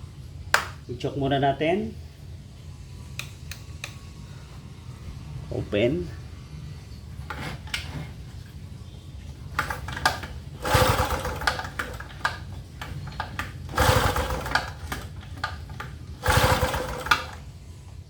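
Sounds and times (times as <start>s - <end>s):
generator engine cranking: 9.5s - 17.5s.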